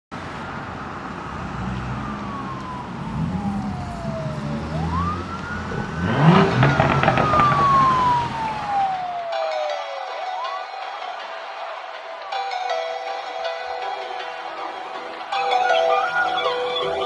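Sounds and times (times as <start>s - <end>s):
car engine revving: 0.2s - 9.2s
siren wailing: 1.1s - 11.5s, 15.2s - 17.0s.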